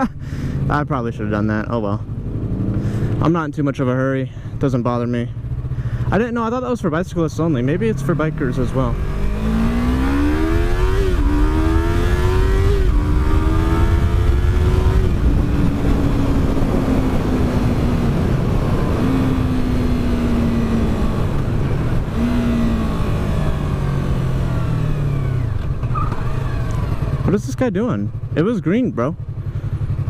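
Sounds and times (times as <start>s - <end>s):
motorcycle engine accelerating: 0.0s - 30.0s
wind rumble on microphone: 10.6s - 27.0s.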